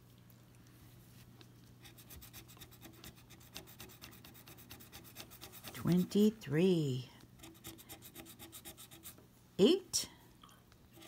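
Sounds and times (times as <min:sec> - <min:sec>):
scraping scratch-off ticket: 0:02.3 - 0:06.4.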